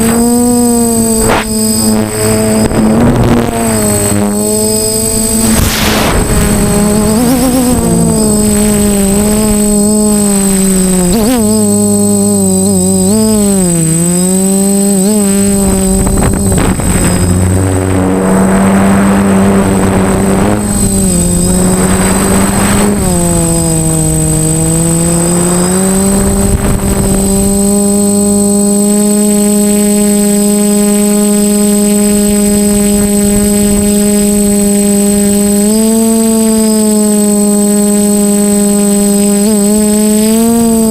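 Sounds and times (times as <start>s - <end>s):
drone propellers whining: 0.0s - 40.9s
wind buffeting microphone: 1.9s - 12.0s, 15.1s - 28.2s.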